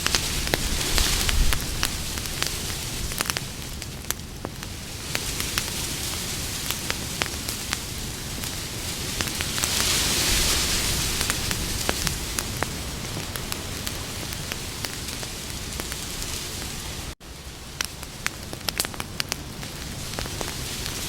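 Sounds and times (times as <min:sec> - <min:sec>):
campfire crackling and popping: 0:00.0 - 0:21.0
hiss of burning wood: 0:00.0 - 0:21.0.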